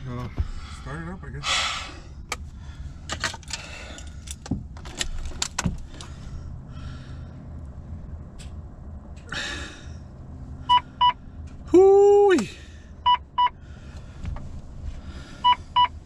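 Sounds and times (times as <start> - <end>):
low rumble: 0.0 - 11.8
steady low hum: 0.0 - 16.0.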